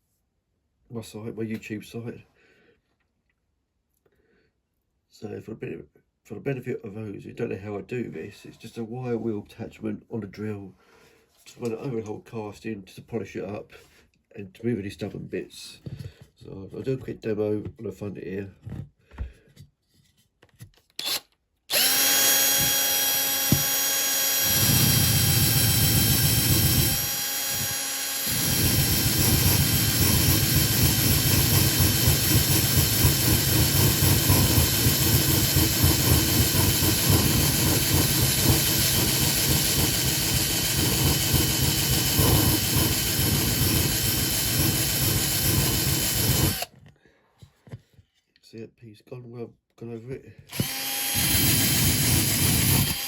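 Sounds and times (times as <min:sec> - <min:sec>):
electric drill whining: 0:21.0 - 0:46.8, 0:50.5 - 0:53.0.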